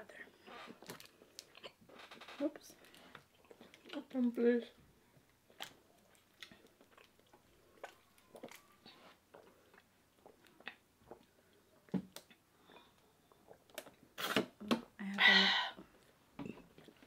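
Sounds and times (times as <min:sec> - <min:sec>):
wet chewing clicks and smacks: 0:00.8 - 0:01.8, 0:02.8 - 0:04.0, 0:05.5 - 0:14.1.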